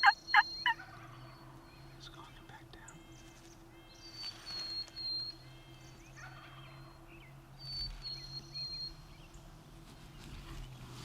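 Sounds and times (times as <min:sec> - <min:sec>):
turkey gobbling: 0:00.0 - 0:01.2.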